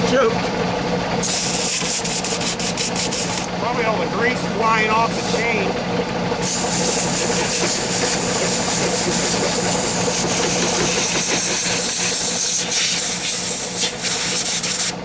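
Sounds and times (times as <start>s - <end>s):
pressurized jet hissing: 4.4s - 5.6s, 6.4s - 15.0s.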